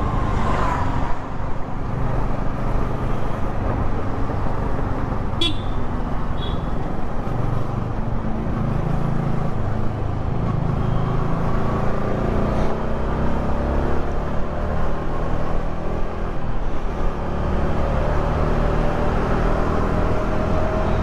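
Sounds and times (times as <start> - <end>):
motorcycle engine: 3.6 - 8.6.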